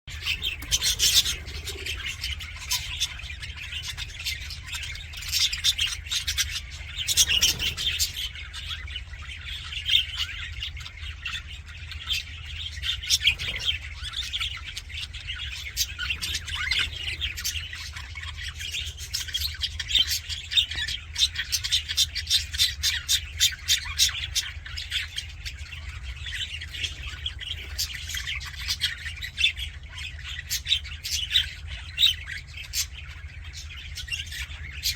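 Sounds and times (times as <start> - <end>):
steady low hum: 0.1 - 21.1
budgerigars chattering and warbling: 0.1 - 34.9.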